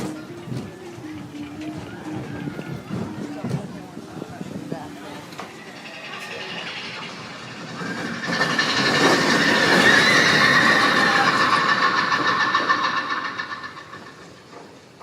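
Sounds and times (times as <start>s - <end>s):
roller coaster rumbling on track: 0.0s - 15.0s
high metallic squeal: 5.5s - 14.4s.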